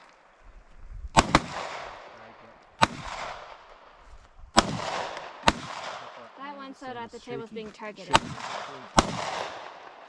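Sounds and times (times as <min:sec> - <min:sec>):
gunshots with echo: 0:01.2 - 0:03.9, 0:04.5 - 0:06.4, 0:08.1 - 0:10.0.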